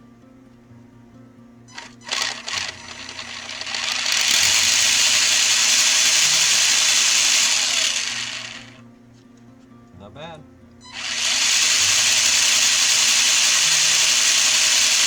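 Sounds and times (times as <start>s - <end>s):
electric motor and gears whirring: 1.7s - 8.8s, 10.8s - 15.0s.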